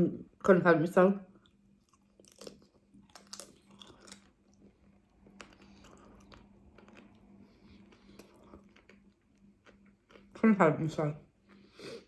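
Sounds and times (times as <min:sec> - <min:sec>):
low steady hum: 0:00.0 - 0:12.0
crunchy chewing: 0:01.4 - 0:10.4.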